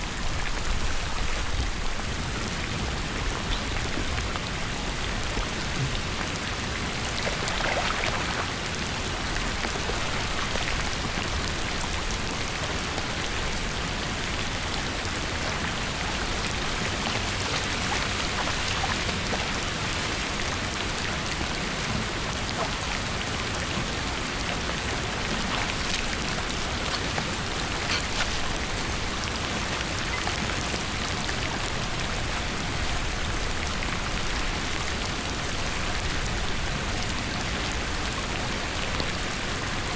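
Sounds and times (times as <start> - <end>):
rain falling on wet surface: 0.0 - 39.9.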